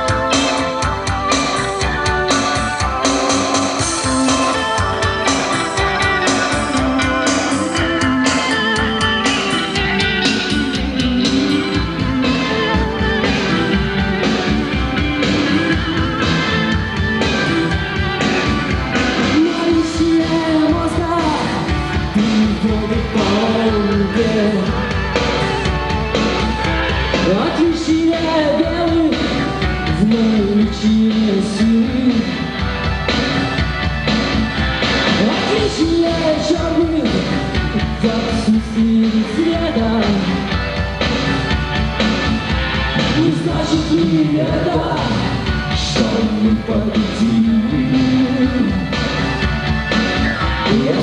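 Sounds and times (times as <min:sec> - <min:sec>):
drum beat: 0:00.0 - 0:30.5
held melody line: 0:00.0 - 0:51.0
rock band playing live: 0:00.0 - 0:51.0.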